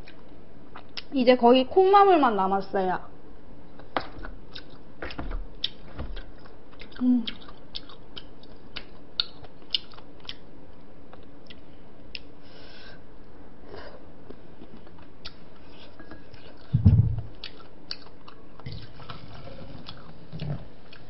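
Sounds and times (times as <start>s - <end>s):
crunchy chewing: 3.7s - 12.3s, 14.6s - 21.0s.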